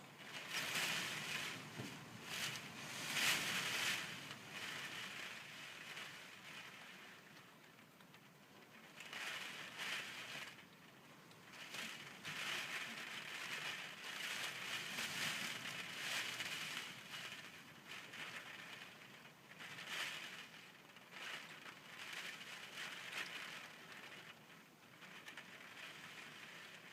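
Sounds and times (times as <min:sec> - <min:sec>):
gusting wind: 0:00.0 - 0:06.8.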